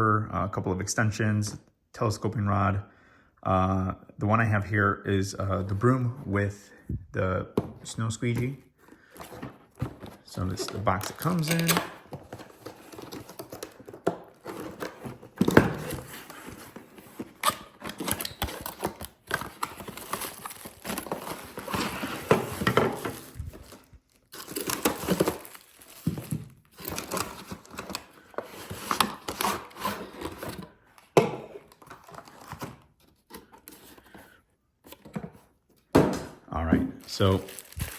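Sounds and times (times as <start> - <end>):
plastic wrapping crinkling: 22.9 - 28.2, 37.0 - 37.9.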